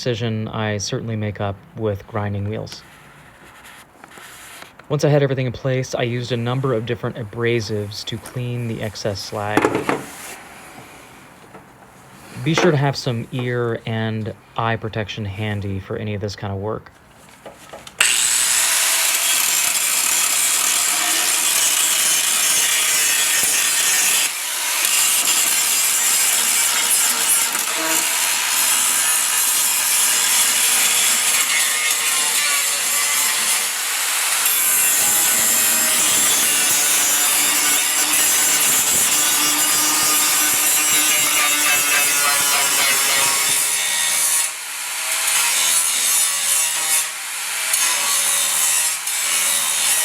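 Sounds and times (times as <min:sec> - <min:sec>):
angle grinder grinding steel: 0:06.0 - 0:13.6, 0:18.0 - 0:50.0.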